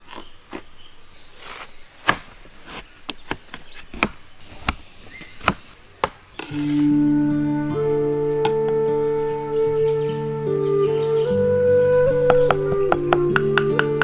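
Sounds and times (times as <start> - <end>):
flute music: 6.5 - 14.0.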